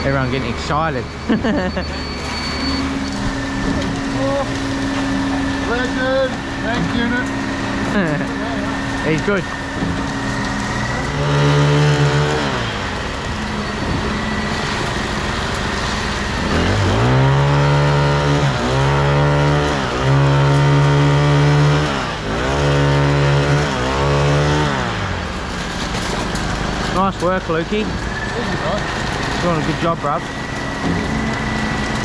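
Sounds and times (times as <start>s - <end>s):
engine revving up and down: 0.0s - 32.0s.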